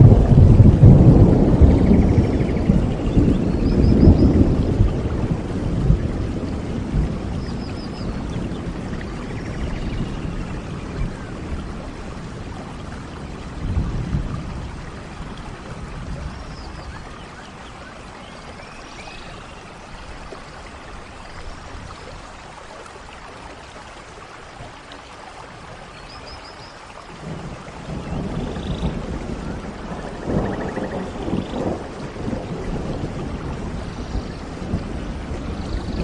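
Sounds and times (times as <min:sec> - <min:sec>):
thunder rumbling: 0:00.0 - 0:18.0, 0:27.2 - 0:36.0
steady rain: 0:00.0 - 0:36.0.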